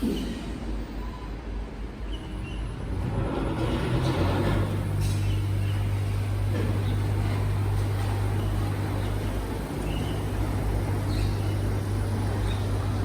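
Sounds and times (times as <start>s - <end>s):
garbage truck engine hum: 2.8s - 13.0s.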